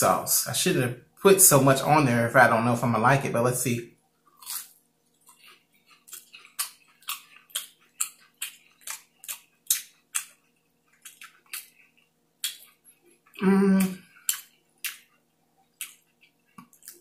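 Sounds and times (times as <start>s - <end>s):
crisp wet chewing: 4.2s - 17.0s
person humming: 13.4s - 14.0s.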